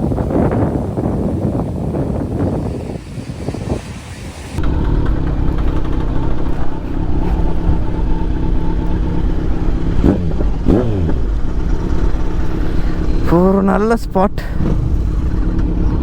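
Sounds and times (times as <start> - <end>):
wind noise: 0.0 - 16.0
motorcycle engine running: 4.6 - 16.0.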